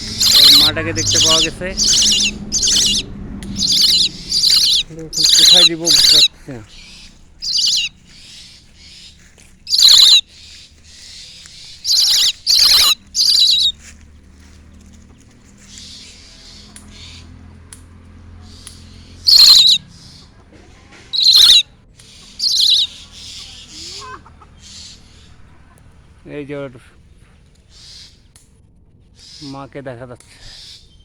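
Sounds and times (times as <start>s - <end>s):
birds giving short calls: 0.0s - 14.0s, 18.5s - 20.2s, 21.2s - 25.4s.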